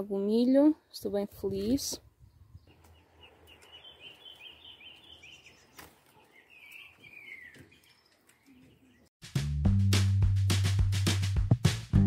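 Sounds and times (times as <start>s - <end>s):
bird chirping: 2.0s - 9.1s.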